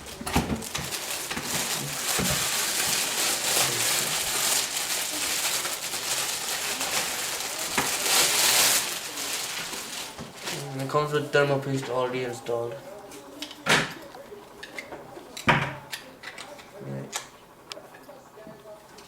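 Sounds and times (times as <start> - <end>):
packaging crinkling and rustling: 0.0 - 12.1.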